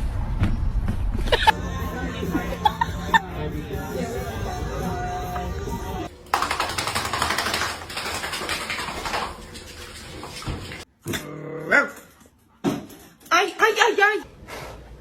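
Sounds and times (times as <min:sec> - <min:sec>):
water splashing: 0:06.2 - 0:10.9.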